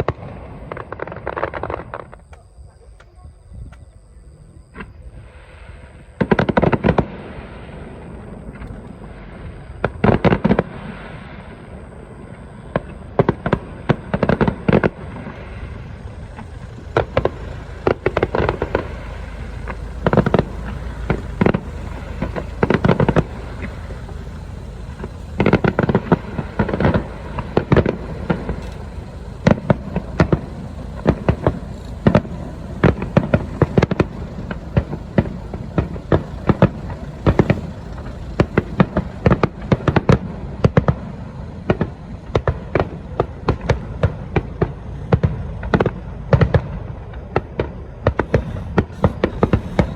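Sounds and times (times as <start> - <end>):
fireworks booming and crackling: 0.0 - 2.8, 4.7 - 49.9
steady low rumble: 10.6 - 49.9.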